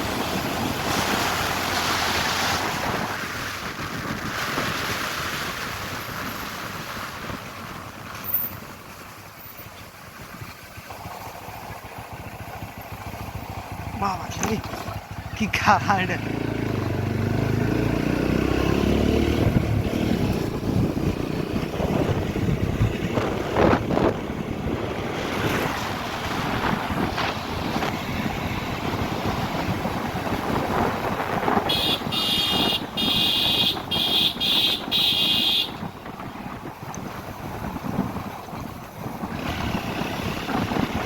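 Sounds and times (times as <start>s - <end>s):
wind buffeting microphone: 0.0s - 10.6s, 11.8s - 41.0s
road noise: 0.0s - 41.0s
motorcycle engine: 5.8s - 41.0s
horn short blasts: 31.6s - 35.9s.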